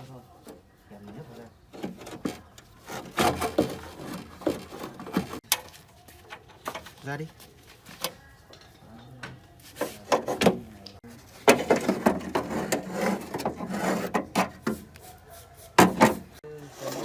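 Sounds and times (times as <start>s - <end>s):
knocks and clatters: 1.7s - 5.7s, 11.4s - 14.8s
rubbing or scraping: 1.8s - 5.4s, 9.6s - 17.0s.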